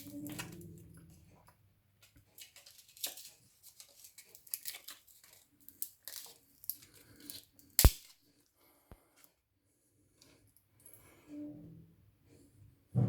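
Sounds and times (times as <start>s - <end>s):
plastic clicks and rustles: 1.4s - 8.2s
sharp plastic snap: 7.8s - 8.1s.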